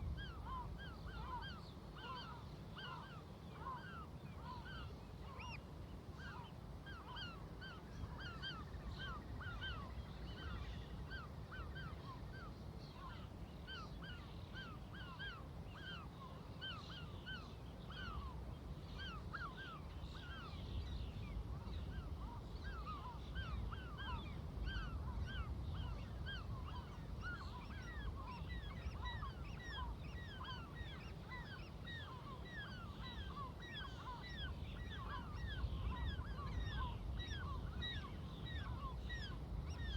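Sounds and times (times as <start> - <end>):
seagulls calling: 0.2 - 5.6, 19.0 - 20.5, 21.7 - 39.9.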